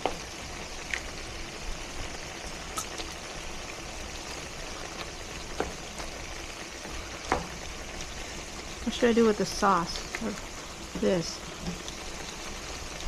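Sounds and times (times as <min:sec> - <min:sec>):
food sizzling in frying pan: 0:00.0 - 0:13.0
sharp pops: 0:02.7 - 0:03.2.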